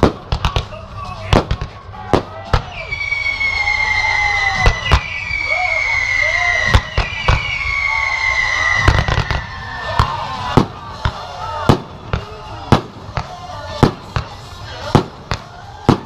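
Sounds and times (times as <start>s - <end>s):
firework bangs: 0.0s - 16.0s
firework whistles sliding down: 2.6s - 9.9s.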